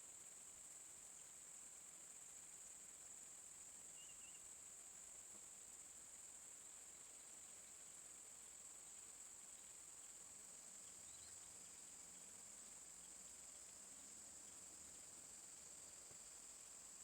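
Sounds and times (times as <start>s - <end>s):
high-pitched insect chorus: 3.9s - 4.5s, 8.6s - 17.0s.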